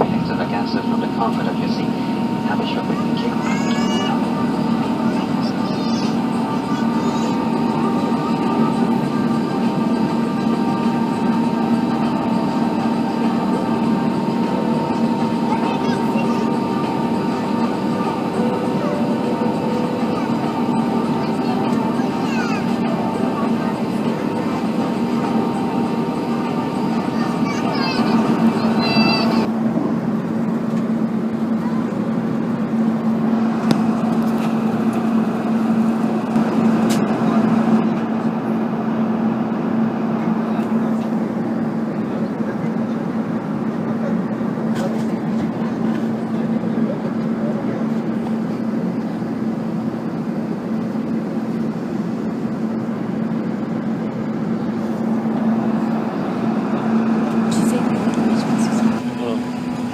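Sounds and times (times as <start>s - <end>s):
even low hum: 0.0s - 59.9s
jet engine cabin drone: 0.0s - 59.9s.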